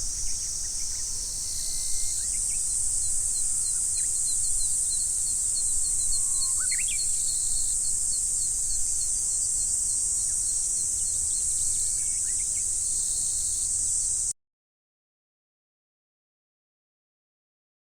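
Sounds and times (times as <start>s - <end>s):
insect chirps: 0.0s - 14.3s
insects buzzing: 0.0s - 14.3s.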